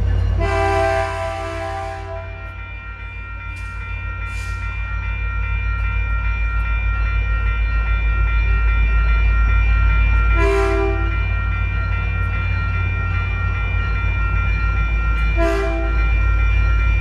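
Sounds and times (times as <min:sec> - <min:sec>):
crossing signal bells ringing: 0:00.0 - 0:17.0
diesel locomotive engine rumble: 0:00.0 - 0:17.0
locomotive horn: 0:00.4 - 0:02.5, 0:10.4 - 0:11.1, 0:15.4 - 0:16.0.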